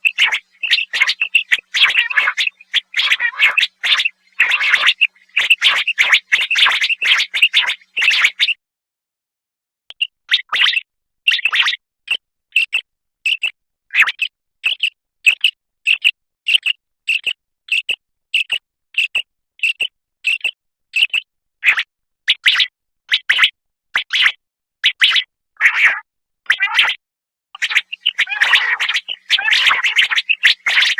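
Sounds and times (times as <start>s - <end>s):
quail calling: 0.0s - 8.5s, 27.6s - 30.9s.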